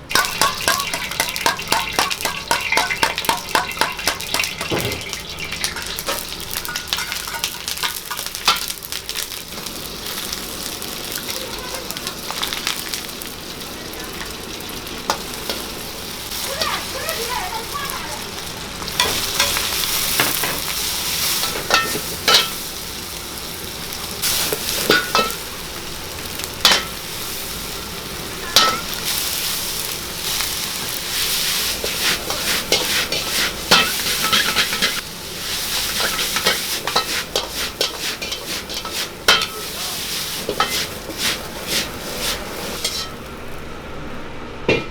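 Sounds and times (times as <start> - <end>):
food sizzling in hot oil: 0.0 - 44.3
metal ladle scraping a wok: 0.1 - 9.3, 18.9 - 22.8, 28.5 - 43.3.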